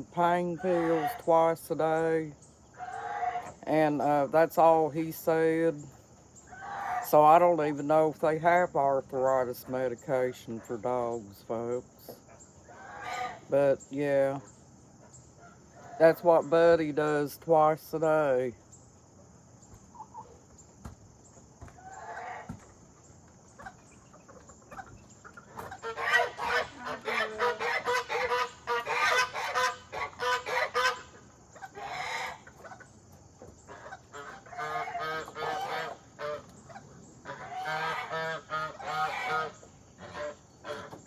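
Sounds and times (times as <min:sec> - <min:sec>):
poultry honking calls: 0:00.0 - 0:02.1, 0:02.7 - 0:04.7, 0:06.4 - 0:07.6, 0:12.6 - 0:13.8, 0:21.8 - 0:22.6, 0:23.6 - 0:41.0.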